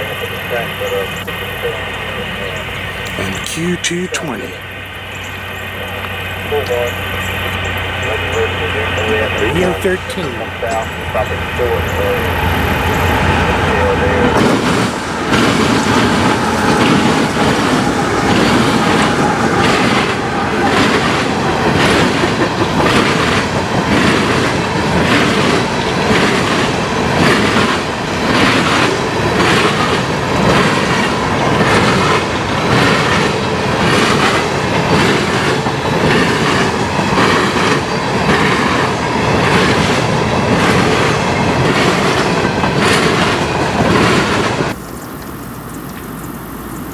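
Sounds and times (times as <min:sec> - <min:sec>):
train rumble: 0:00.0 - 0:46.9
train wheels clacking over rail joints: 0:10.6 - 0:44.8.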